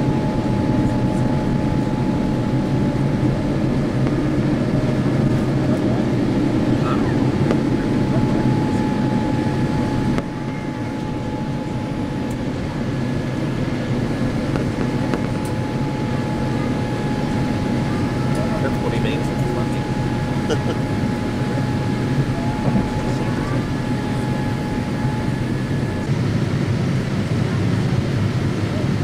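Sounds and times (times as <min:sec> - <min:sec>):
airplane cabin engine rumble: 0:00.0 - 0:29.0
steady whine: 0:00.0 - 0:29.0.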